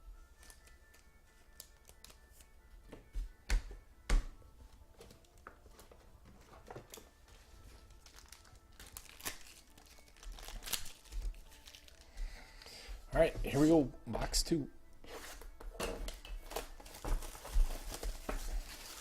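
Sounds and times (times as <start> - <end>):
faint background music: 0.0 - 19.0
plastic packaging crinkling: 5.2 - 12.1, 16.4 - 19.0.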